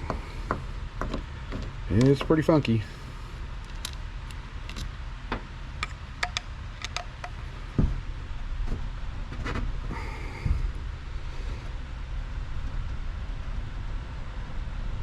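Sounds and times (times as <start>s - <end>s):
steady low hum: 0.0s - 15.0s
metallic tool clicks and taps: 5.8s - 7.4s
dull knocks: 7.8s - 8.0s.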